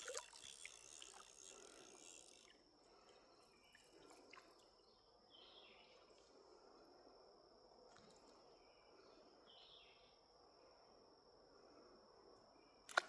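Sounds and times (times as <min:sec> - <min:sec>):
high-pitched insect trill: 0:00.0 - 0:04.6.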